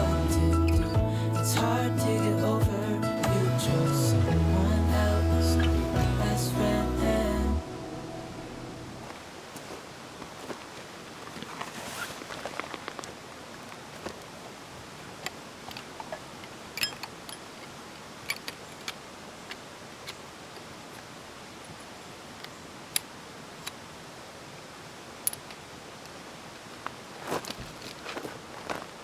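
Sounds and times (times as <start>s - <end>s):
steady background hiss: 0.0s - 29.0s
rustling: 9.0s - 21.1s, 26.5s - 29.0s
sharp clicks and clinks: 16.8s - 17.5s.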